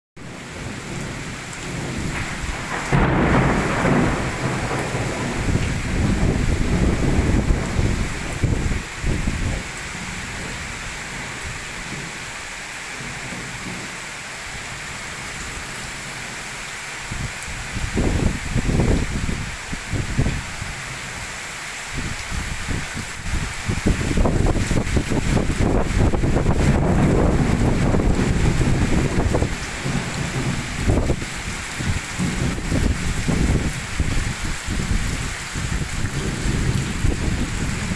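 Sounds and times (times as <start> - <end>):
steady rain hiss: 0.2 - 37.9
low thunder rumbling: 0.5 - 14.0, 22.0 - 37.9.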